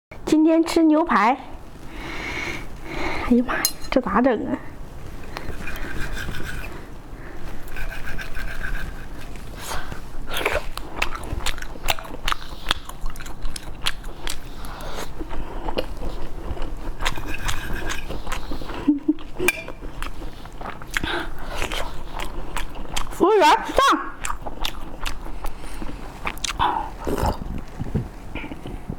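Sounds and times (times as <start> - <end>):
person biting and chewing food: 7.7 - 23.2, 24.2 - 27.9.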